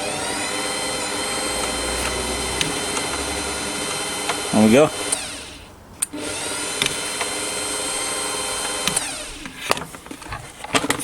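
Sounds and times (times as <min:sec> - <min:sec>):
clicks: 0:00.0 - 0:06.2, 0:08.6 - 0:11.0
stand mixer motor whining: 0:00.0 - 0:09.6.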